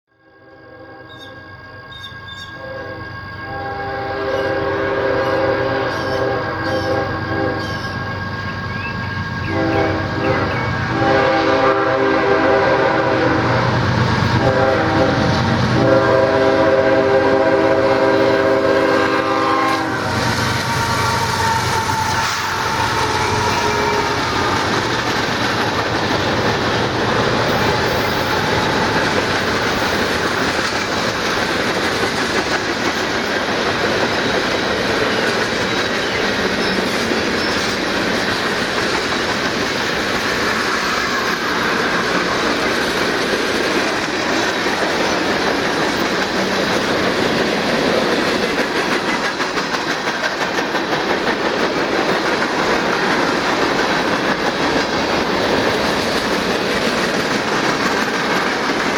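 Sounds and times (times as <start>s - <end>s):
train wheels rumbling on rail: 1.1s - 58.9s
clickety-clack over rail joints: 18.3s - 58.9s.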